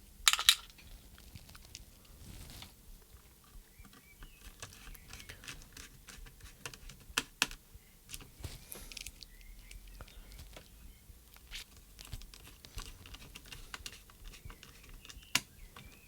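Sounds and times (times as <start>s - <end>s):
small clicks taps and scrapes on plastic: 3.4s - 16.0s.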